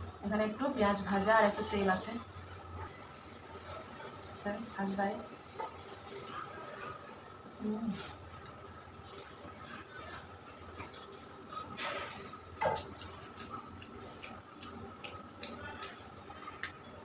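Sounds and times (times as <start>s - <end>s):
person chewing wetly: 8.4s - 17.0s
lip smacks and clicks: 12.8s - 16.0s.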